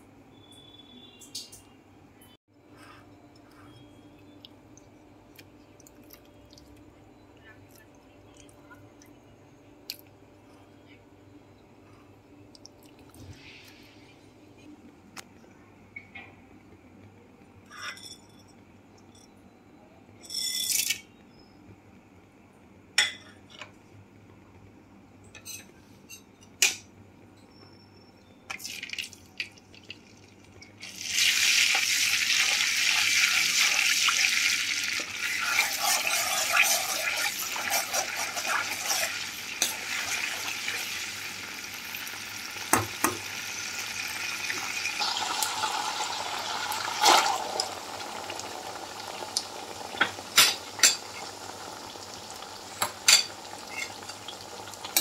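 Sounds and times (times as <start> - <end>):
paste sizzling in hot oil: 30.8 - 54.7
metal spoon scraping a pan: 35.2 - 40.4.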